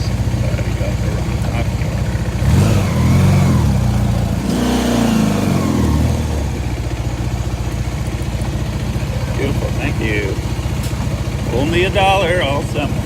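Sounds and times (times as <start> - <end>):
engine note rising and falling: 0.0 - 6.8
motorcycle engine idling: 0.0 - 13.0.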